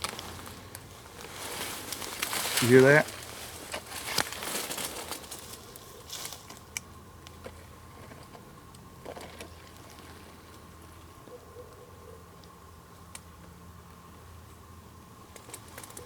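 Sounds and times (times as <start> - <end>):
faint rustling: 0.0 - 6.5
small clicks and snaps: 12.4 - 13.3.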